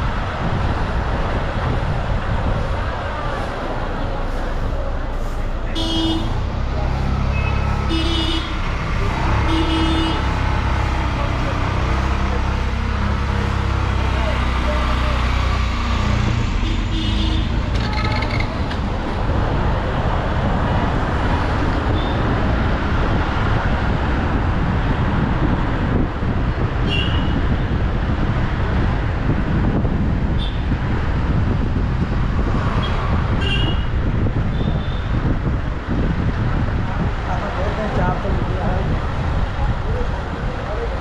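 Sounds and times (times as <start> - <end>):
road and engine rumble: 0.0 - 41.0.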